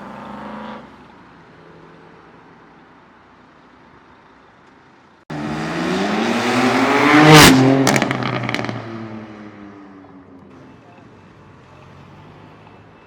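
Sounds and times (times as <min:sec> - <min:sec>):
sports car accelerating past: 0:05.3 - 0:10.1.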